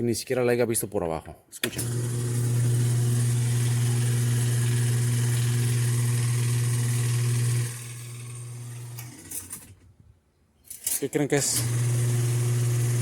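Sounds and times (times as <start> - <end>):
washing machine motor humming: 1.7 - 9.6, 11.5 - 13.0.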